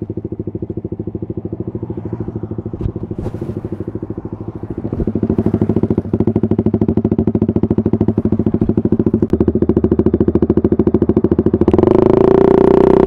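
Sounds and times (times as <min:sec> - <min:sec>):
motorcycle engine idling: 0:00.0 - 0:13.0
steady drone: 0:00.0 - 0:13.0.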